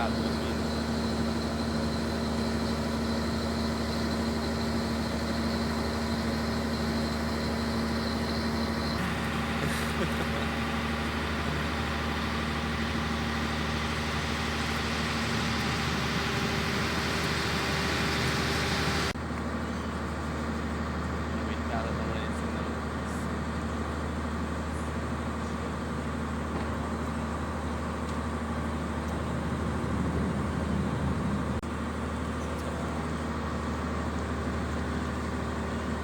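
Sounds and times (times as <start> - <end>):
boat engine humming: 0.0 - 19.2
rushing hiss: 9.0 - 19.2.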